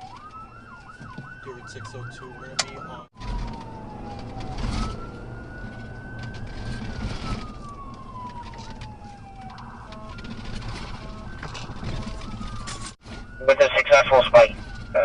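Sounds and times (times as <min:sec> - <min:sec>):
engine and road rumble: 0:00.0 - 0:15.0
police siren wailing: 0:00.0 - 0:15.0
stepped siren tones: 0:00.0 - 0:15.0.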